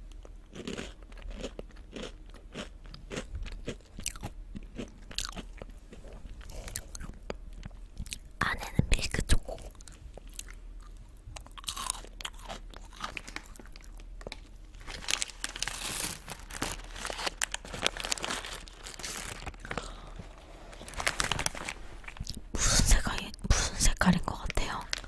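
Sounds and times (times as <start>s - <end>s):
crunching and chewing candy: 0.0s - 8.3s, 9.4s - 22.6s, 24.3s - 25.0s
plastic snack packet crackling: 11.5s - 22.4s, 24.3s - 25.0s.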